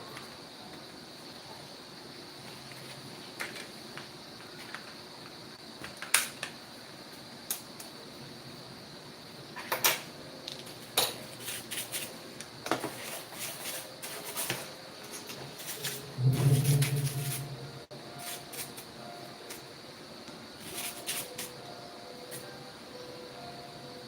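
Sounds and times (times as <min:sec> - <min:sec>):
faint high whine: 0:15.8 - 0:24.0.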